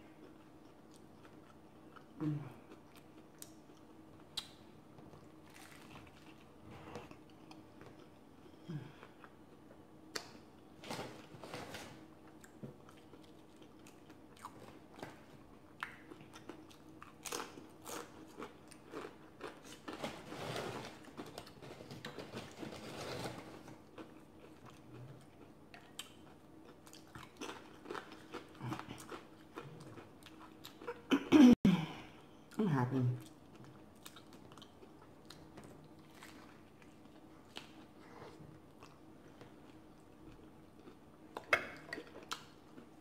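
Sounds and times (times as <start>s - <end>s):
person chewing and biting: 5.2s - 8.2s, 12.3s - 20.0s, 23.8s - 31.0s.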